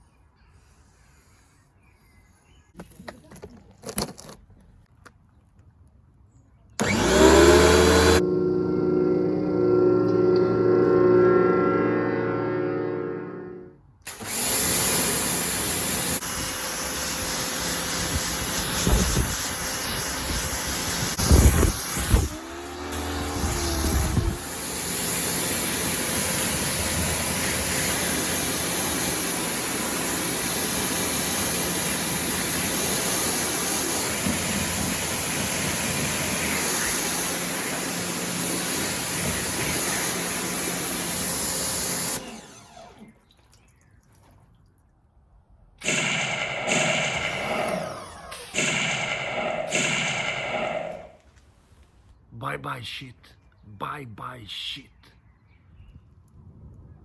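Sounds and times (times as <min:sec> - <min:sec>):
short pitched sounds: 0:06.8 - 0:13.9, 0:45.8 - 0:51.3
motor humming: 0:06.8 - 0:43.2, 0:45.8 - 0:51.3
pressure washer spraying water: 0:14.1 - 0:42.4, 0:45.8 - 0:51.2.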